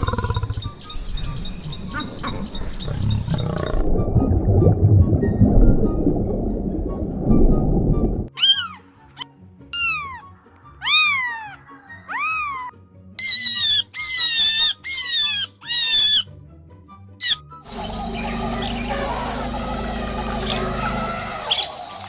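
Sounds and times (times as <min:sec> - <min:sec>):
soft background music: 0:00.0 - 0:22.0
cat meowing: 0:09.8 - 0:12.7.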